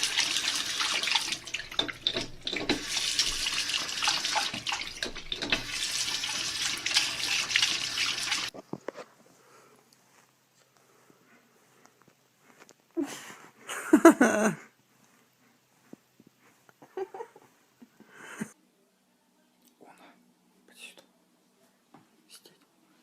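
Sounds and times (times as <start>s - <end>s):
water running and splashing: 0.0s - 8.5s.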